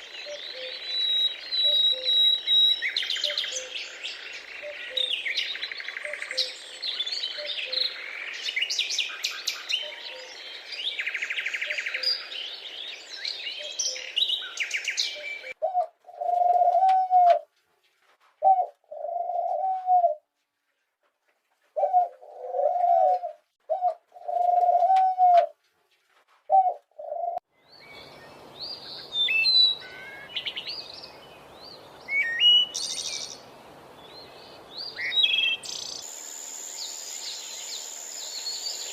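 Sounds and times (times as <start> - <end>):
low cooing calls: 0.0 - 3.8, 9.6 - 10.4, 15.0 - 17.5, 18.4 - 20.3, 21.8 - 25.6, 26.5 - 27.4
small birds chirping: 0.0 - 16.3, 27.6 - 38.9
faint steady hiss: 27.6 - 38.9.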